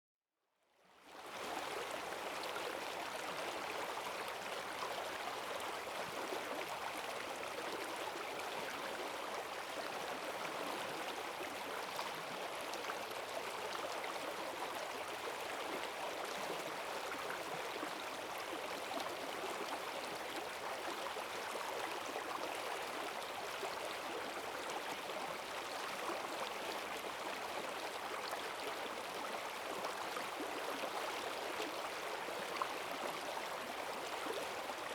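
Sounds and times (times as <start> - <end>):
rushing stream water: 1.1 - 34.9.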